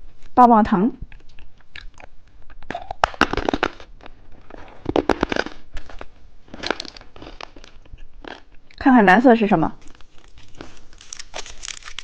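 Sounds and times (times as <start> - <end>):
plastic wrapper crinkling: 3.0 - 7.8, 9.8 - 12.0.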